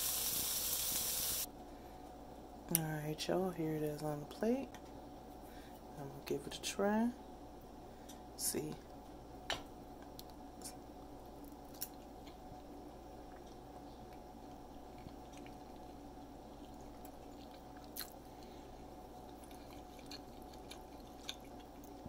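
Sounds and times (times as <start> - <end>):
steady low hum: 0.0 - 22.0
person chewing food: 11.5 - 22.0.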